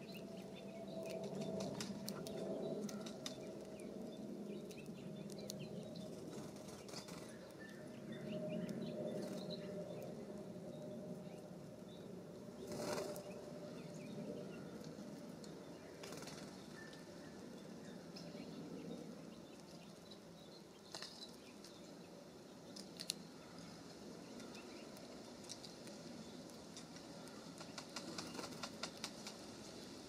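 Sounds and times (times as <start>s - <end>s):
bird wings fluttering: 1.2s - 3.5s, 6.1s - 7.4s, 12.6s - 13.2s, 16.0s - 16.7s, 26.8s - 29.8s
birds tapping and pecking at feeder: 24.3s - 29.4s.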